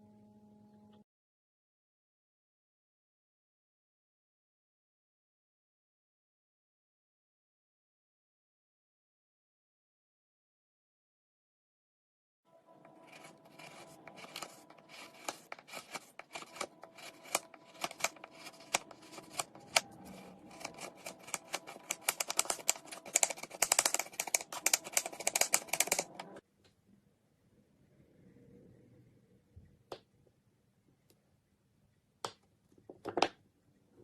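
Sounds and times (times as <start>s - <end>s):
crisp clicking and crunching: 13.0s - 26.4s.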